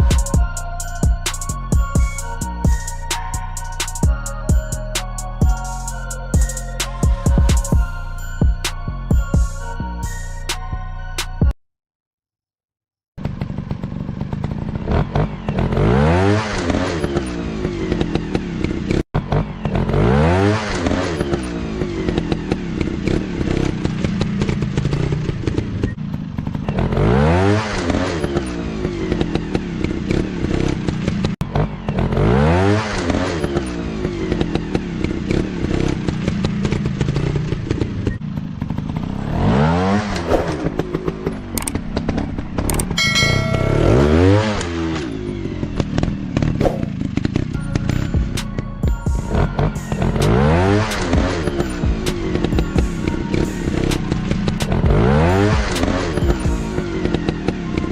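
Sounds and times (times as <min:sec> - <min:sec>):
engine clattering and knocking: 0:13.2 - 0:15.9, 0:20.8 - 0:27.2, 0:33.6 - 0:39.6, 0:45.4 - 0:57.9
dirt bike engines revving: 0:13.2 - 0:57.9.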